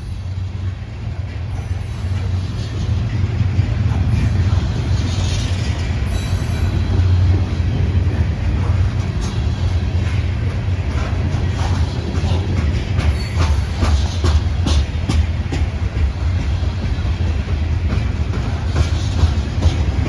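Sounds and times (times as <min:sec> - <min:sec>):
freight train rumbling past: 0:00.0 - 0:20.0
wheels clicking over rail joints: 0:00.1 - 0:20.0.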